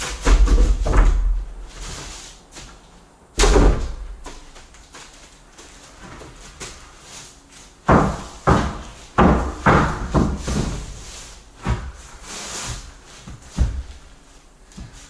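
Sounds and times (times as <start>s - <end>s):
plywood sheets thumping on joists: 0.0s - 1.8s, 3.4s - 4.6s, 7.8s - 12.0s.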